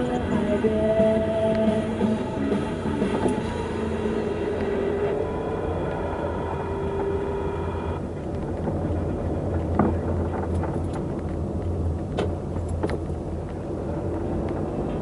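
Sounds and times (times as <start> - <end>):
held multi-note tone: 0.0 - 8.1
vehicle engine and road hum: 0.0 - 15.0.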